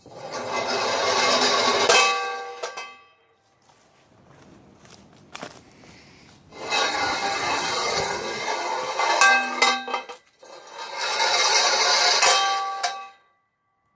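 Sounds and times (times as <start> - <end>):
metallic clanging from fence post: 6.5 - 13.2.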